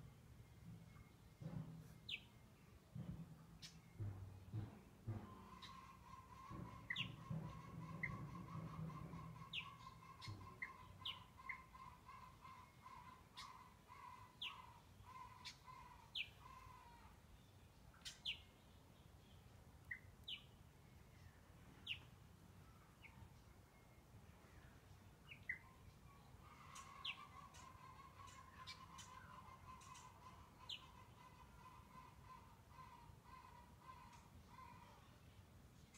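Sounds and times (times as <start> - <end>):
low pulsing bird call: 3.6 - 17.2.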